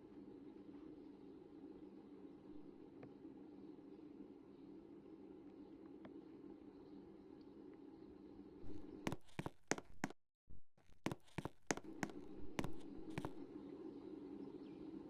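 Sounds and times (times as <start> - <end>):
sharp clicks and knocks: 10.8 - 13.4.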